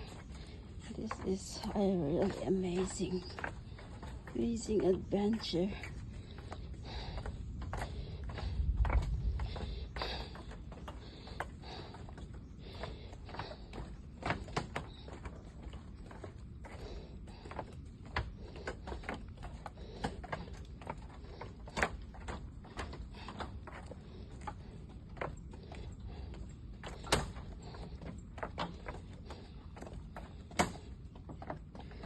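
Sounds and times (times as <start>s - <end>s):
footsteps on a trail: 0.0s - 32.0s
wind rumble on microphone: 4.3s - 11.9s.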